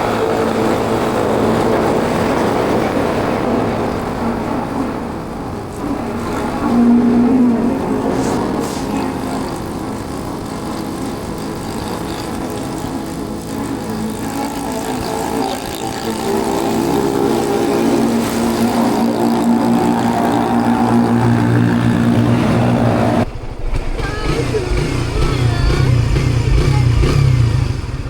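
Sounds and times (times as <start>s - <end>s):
road and wind noise: 0.0s - 28.0s
motorbike engine running: 5.6s - 28.0s.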